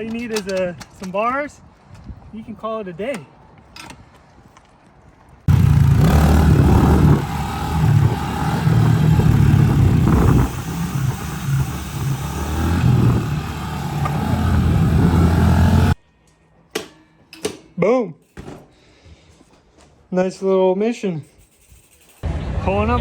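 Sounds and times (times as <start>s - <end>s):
motorcycle engine revving: 5.5s - 16.0s.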